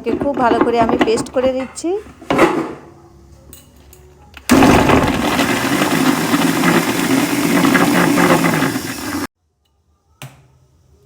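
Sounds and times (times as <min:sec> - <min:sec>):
mixer grinder running: 0:04.5 - 0:09.3.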